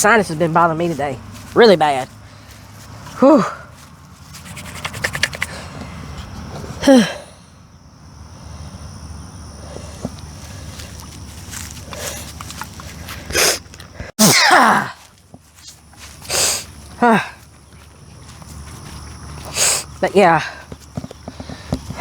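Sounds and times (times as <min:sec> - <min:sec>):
crunching footsteps: 0:00.0 - 0:06.8, 0:09.4 - 0:14.2, 0:14.8 - 0:22.0
low outdoor rumble: 0:00.0 - 0:14.1
man sighing: 0:06.8 - 0:07.4.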